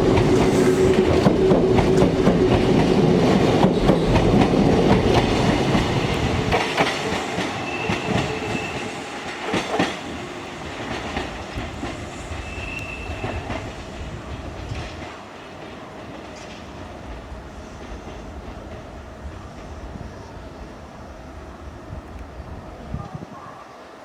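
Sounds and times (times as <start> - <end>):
train clattering over rail joints: 0.0 - 18.9
train wheel squeal: 7.1 - 10.1, 11.2 - 14.1.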